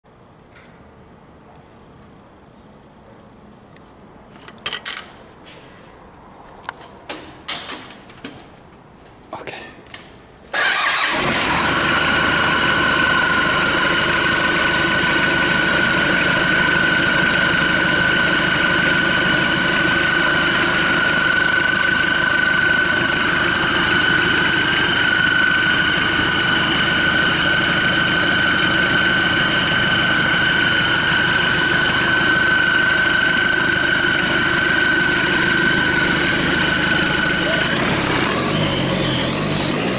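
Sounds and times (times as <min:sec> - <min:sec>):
clicks and knocks: 0:06.7 - 0:08.6
diesel engine running: 0:10.5 - 0:39.9
high whine: 0:10.9 - 0:39.9.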